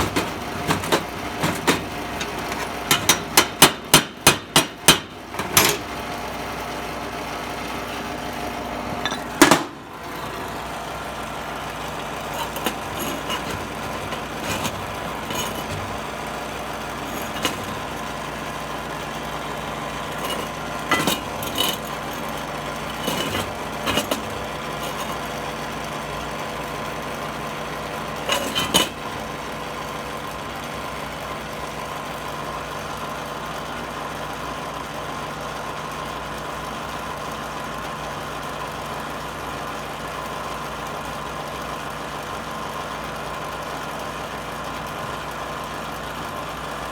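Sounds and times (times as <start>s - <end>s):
metallic clinks and knocks: 0.0s - 3.7s, 9.0s - 9.8s, 12.2s - 18.2s, 20.0s - 25.3s, 28.3s - 29.0s
steady mechanical hum: 0.0s - 46.9s.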